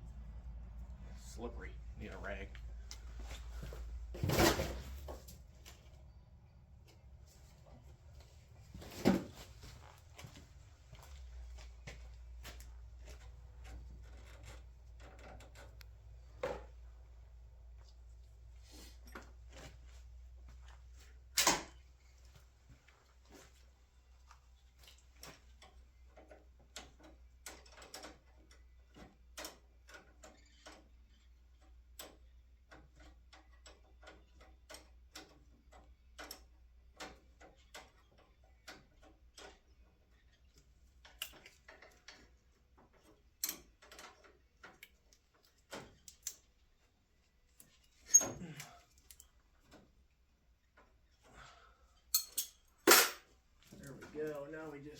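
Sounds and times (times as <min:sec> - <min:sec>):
light clicks and taps of tools: 0:24.2 - 0:46.6, 0:47.4 - 0:50.0, 0:50.6 - 0:52.7.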